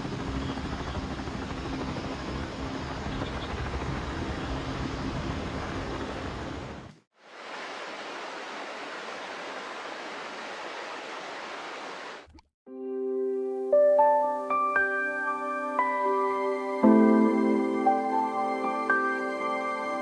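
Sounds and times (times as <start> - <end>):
waterfall rushing: 7.3 - 12.2.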